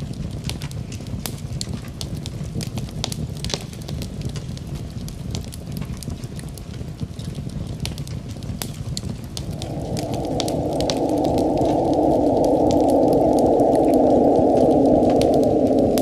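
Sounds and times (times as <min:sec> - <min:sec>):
low wind noise: 0:00.0 - 0:16.0
wood fire crackling and popping: 0:00.0 - 0:16.0.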